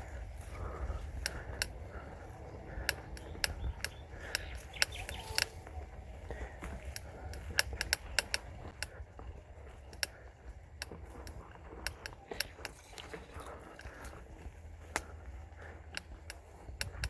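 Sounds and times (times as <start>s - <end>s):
low rumble: 0.0s - 9.9s
bike rattling over rough trail: 0.0s - 17.0s
sharp clicks and ticks: 0.0s - 17.0s.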